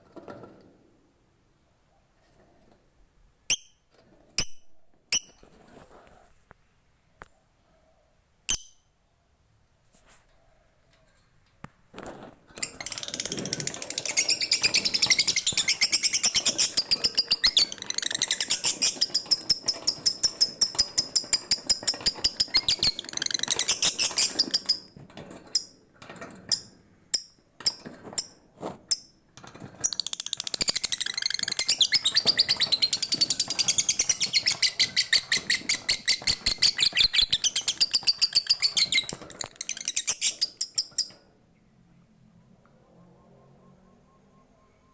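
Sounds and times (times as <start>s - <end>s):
lovebird chirps: 13.9s - 24.7s, 30.0s - 41.2s.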